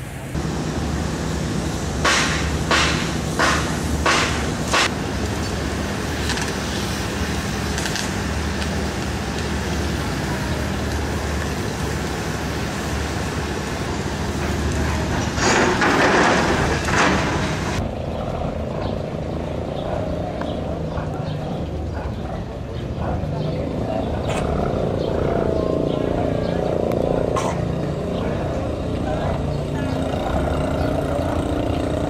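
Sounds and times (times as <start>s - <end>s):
wide rushing hiss: 0.0s - 17.8s
engine running: 0.0s - 32.0s.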